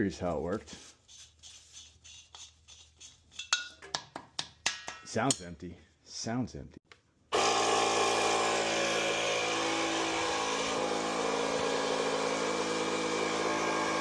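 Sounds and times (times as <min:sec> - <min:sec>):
air compressor pump running: 0:07.4 - 0:14.0.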